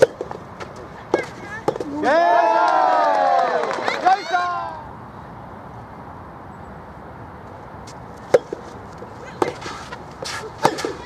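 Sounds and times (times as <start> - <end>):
rackets hitting tennis ball: 0.0 - 2.2, 7.9 - 11.0
steady background noise: 0.0 - 11.0.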